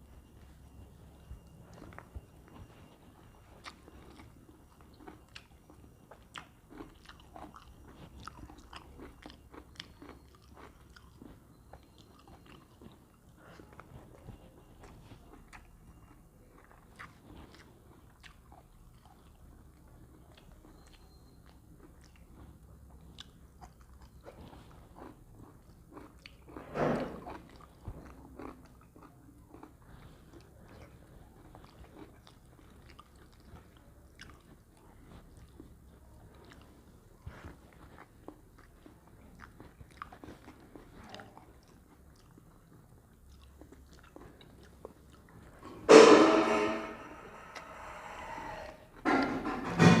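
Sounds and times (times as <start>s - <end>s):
person chewing food: 0.0s - 45.9s, 46.9s - 49.8s
loud sudden sound: 45.9s - 48.8s.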